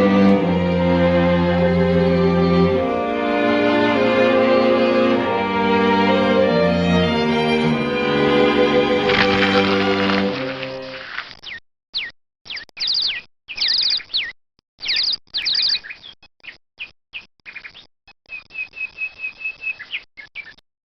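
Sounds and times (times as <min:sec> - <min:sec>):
high bird-like chirps: 0:10.8 - 0:20.6.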